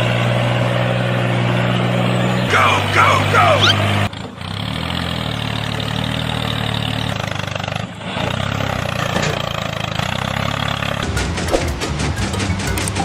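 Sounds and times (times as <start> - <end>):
tractor engine running: 0.0 - 13.0
fast rhythmic clatter: 11.0 - 13.0.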